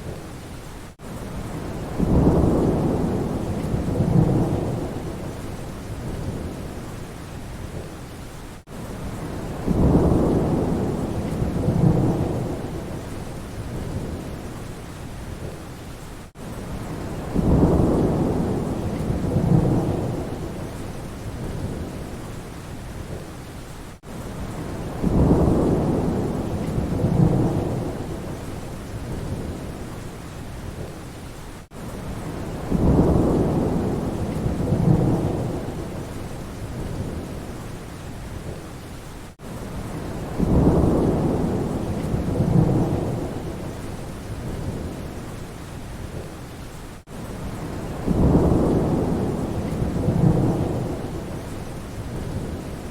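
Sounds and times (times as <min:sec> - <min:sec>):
steady rain: 0:00.0 - 0:52.9
rolling thunder: 0:01.4 - 0:06.8, 0:09.1 - 0:14.4, 0:16.7 - 0:22.2, 0:24.4 - 0:29.8, 0:32.1 - 0:37.5, 0:39.8 - 0:45.2, 0:47.1 - 0:52.9.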